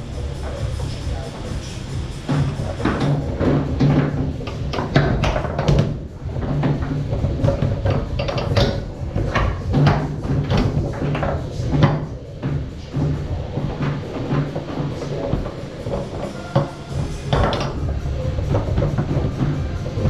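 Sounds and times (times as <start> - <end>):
foosball rods clacking: 0.2 - 20.0.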